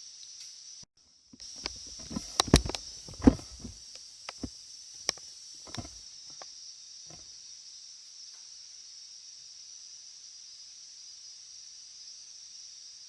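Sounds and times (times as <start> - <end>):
steady high hiss: 0.0 - 13.0
irregular knocks and clatters: 1.6 - 4.5, 5.7 - 6.0.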